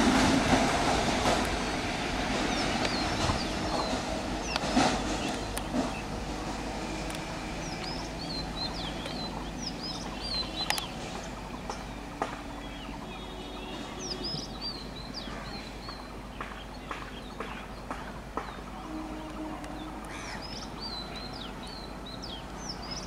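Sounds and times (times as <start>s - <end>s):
passenger train rumble: 0.0s - 23.0s
birds chirping and whistling: 2.5s - 6.1s, 7.6s - 17.8s.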